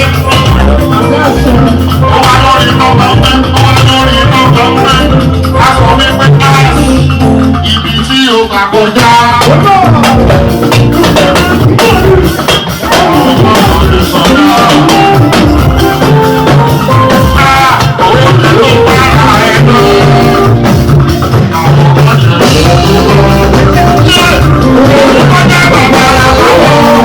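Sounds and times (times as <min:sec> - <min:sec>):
singer: 0:00.0 - 0:16.0, 0:16.9 - 0:27.0
drums and percussion: 0:00.0 - 0:27.0
loud band music: 0:00.0 - 0:27.0.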